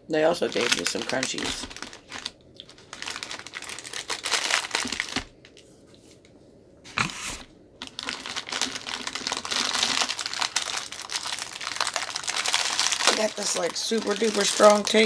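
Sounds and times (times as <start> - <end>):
packet crinkling: 0.2 - 5.7, 6.9 - 15.0
sharp crack: 12.4 - 15.0.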